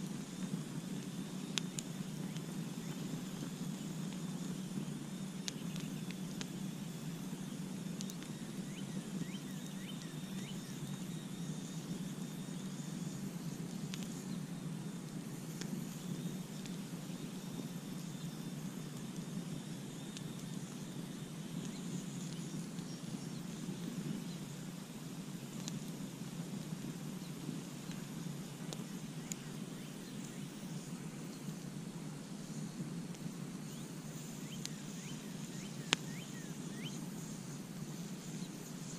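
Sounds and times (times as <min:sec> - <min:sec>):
campfire crackling: 0:00.0 - 0:38.9
faint high chirping: 0:33.6 - 0:38.9.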